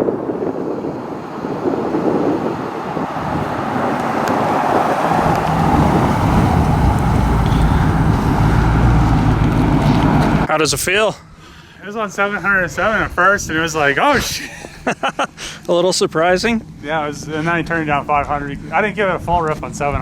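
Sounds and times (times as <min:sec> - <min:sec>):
car engine rumbling: 0:00.0 - 0:10.5.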